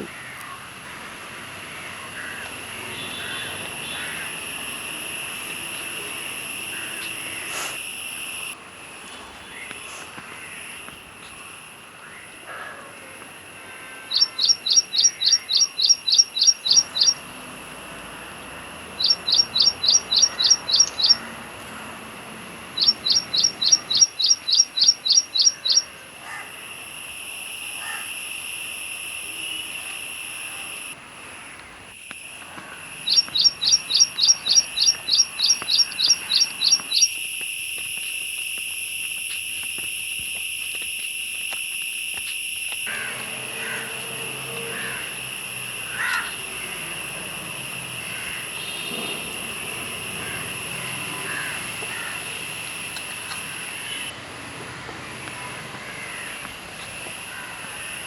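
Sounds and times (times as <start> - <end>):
bird chirping rapidly: 14.1 - 17.2, 18.9 - 21.3, 22.8 - 25.9, 33.0 - 37.1.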